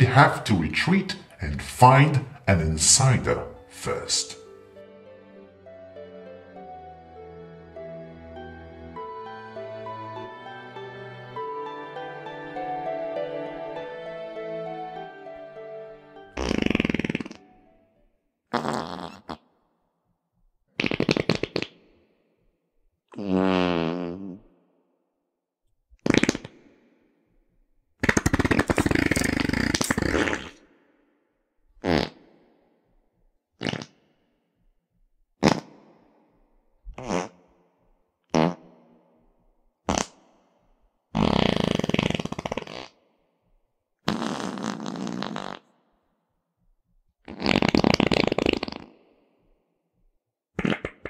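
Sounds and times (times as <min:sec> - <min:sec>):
fart sounds: 0:16.4 - 0:17.7, 0:18.5 - 0:19.5, 0:20.7 - 0:21.9, 0:23.1 - 0:24.5, 0:26.0 - 0:26.8, 0:28.0 - 0:30.7, 0:31.8 - 0:32.4, 0:33.6 - 0:34.2, 0:35.4 - 0:36.0, 0:36.9 - 0:37.5, 0:38.3 - 0:38.9, 0:39.8 - 0:40.4, 0:41.2 - 0:43.0, 0:44.0 - 0:45.9, 0:47.2 - 0:49.4, 0:50.6 - 0:51.0.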